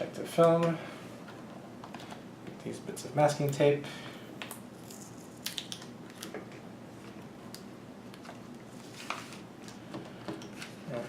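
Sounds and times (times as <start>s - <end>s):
tape and plastic film peeling: 4.8s - 6.5s.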